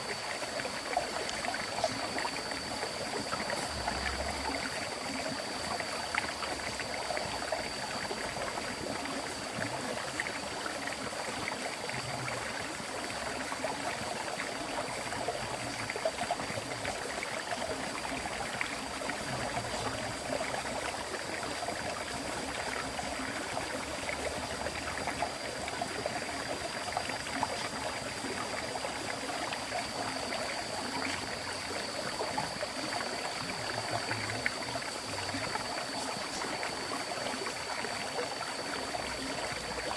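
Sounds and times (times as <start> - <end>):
river water flowing: 0.0 - 11.9.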